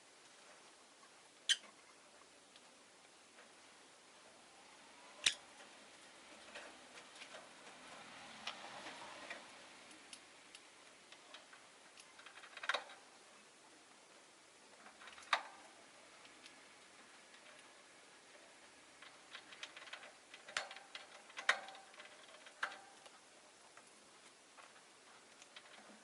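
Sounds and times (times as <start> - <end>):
beaks and claws tapping on bars: 6.4 - 13.2, 14.7 - 26.0.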